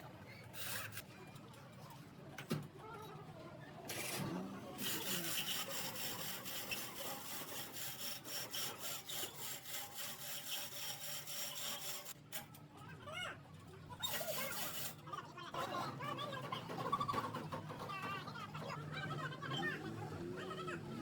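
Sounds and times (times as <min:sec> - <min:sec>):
hand tool rasping on metal: 0:04.8 - 0:12.2.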